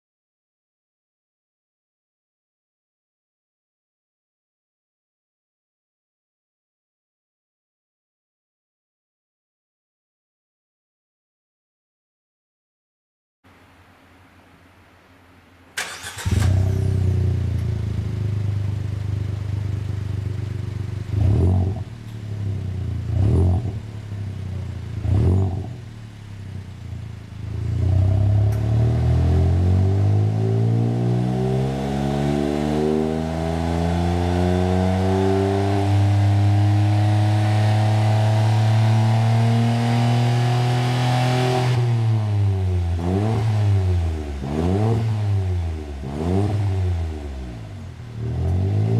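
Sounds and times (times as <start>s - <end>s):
car engine revving: 15.8s - 48.9s
deep exhaust note: 16.4s - 33.6s.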